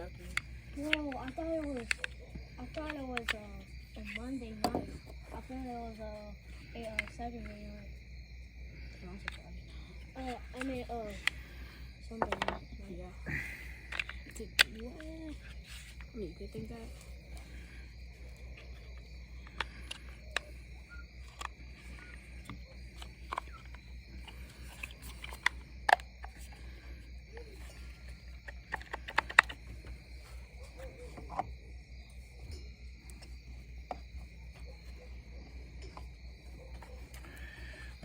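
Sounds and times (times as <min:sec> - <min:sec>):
crickets chirping: 0:00.0 - 0:38.0.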